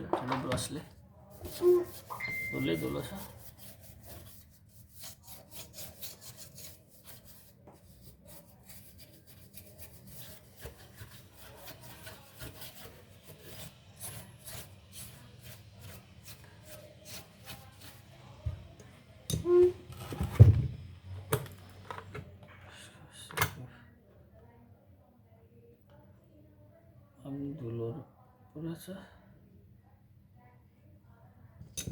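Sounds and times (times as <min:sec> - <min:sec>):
brush scrubbing circuit board: 0:01.3 - 0:18.3.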